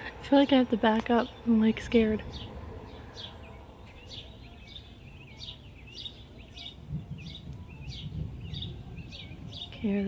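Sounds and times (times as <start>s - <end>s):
low outdoor rumble: 0.0s - 10.0s
songbird chirping: 0.0s - 10.0s
distant thunder: 1.4s - 10.0s.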